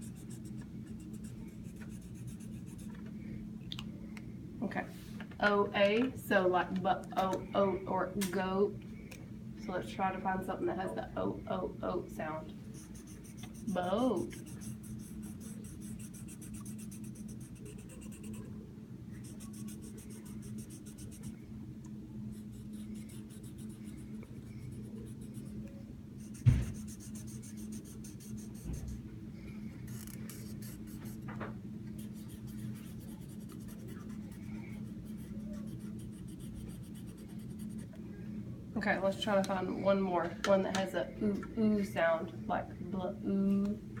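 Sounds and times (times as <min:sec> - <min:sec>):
steady low hum: 0:00.0 - 0:44.0
colouring tool scratching paper: 0:12.7 - 0:18.5, 0:19.2 - 0:21.3, 0:26.2 - 0:28.9, 0:32.0 - 0:37.9
sharp knock: 0:26.4 - 0:26.8.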